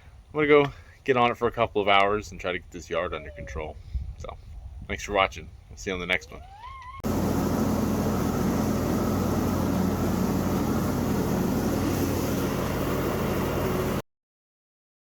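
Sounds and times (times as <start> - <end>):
riding lawn mower engine running: 7.0 - 14.0.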